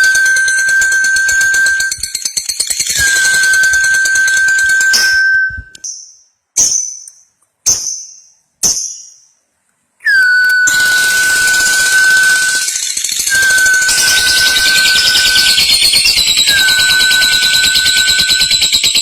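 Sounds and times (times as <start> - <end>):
steady whistle-like tone: 0.0 - 5.8, 10.0 - 19.0.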